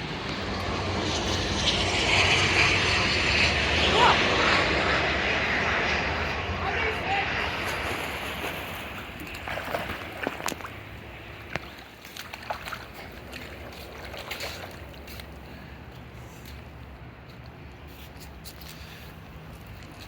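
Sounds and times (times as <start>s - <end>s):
low rumble: 0.0s - 11.7s
pool water splashing: 7.4s - 15.4s.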